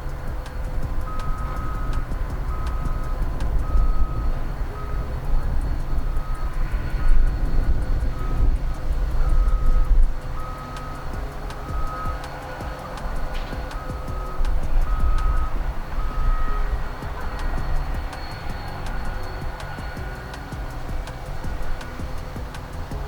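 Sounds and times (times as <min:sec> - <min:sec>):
diesel locomotive engine rumbling: 0:00.0 - 0:23.0
high electronic beep: 0:13.7 - 0:20.8.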